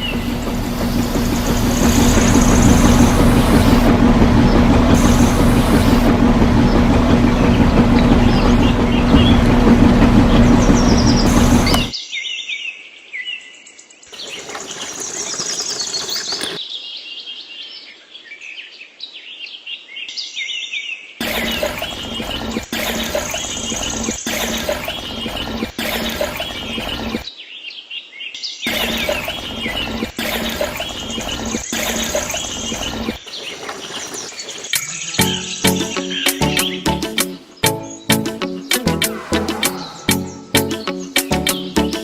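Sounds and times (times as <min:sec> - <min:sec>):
small motor humming: 0:00.0 - 0:11.9, 0:14.1 - 0:16.6, 0:21.2 - 0:27.3, 0:28.7 - 0:36.8
birds chirping: 0:00.0 - 0:12.0, 0:14.1 - 0:16.8, 0:21.3 - 0:27.8, 0:28.7 - 0:42.0.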